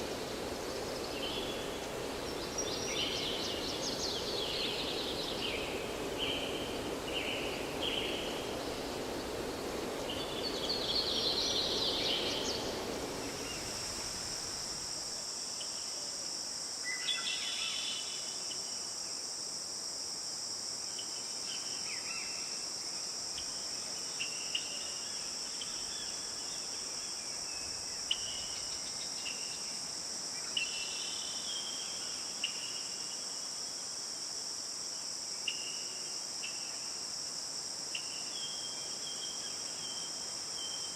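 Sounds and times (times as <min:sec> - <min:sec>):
stream running water: 0:00.0 - 0:15.3.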